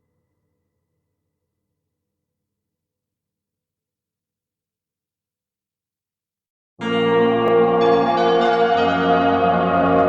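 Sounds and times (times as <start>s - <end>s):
layered sustained tones music: 6.8s - 10.0s.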